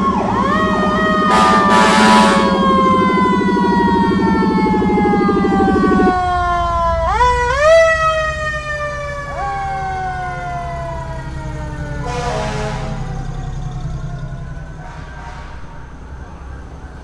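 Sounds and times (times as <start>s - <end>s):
rapid low throbbing: 0.0s - 6.6s
fire engine siren wailing: 0.0s - 17.0s.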